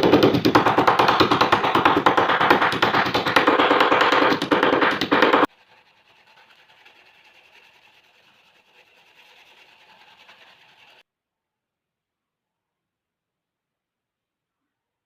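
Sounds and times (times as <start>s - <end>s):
faint room noise: 5.5s - 15.0s.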